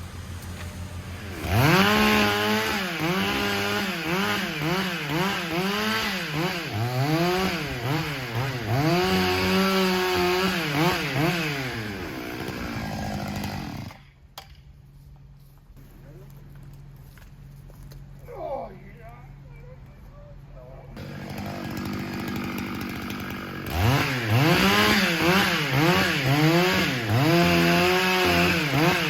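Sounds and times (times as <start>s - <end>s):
chainsaw cutting wood: 0.0s - 14.2s, 21.0s - 29.0s.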